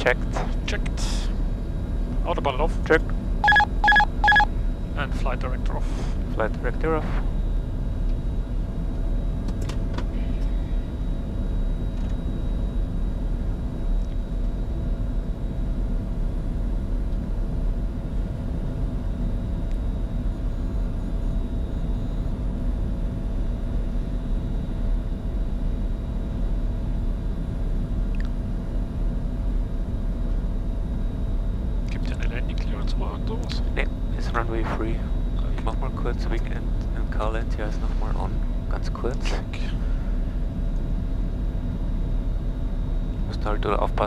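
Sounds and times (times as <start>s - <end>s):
cockpit airflow and engine rumble: 0.0s - 3.4s, 4.5s - 44.0s
faint steady tones: 3.4s - 4.5s.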